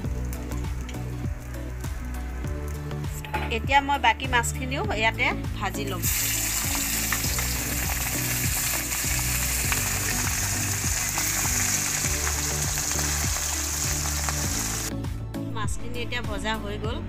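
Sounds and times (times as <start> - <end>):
fish frying in oil: 6.0 - 14.9.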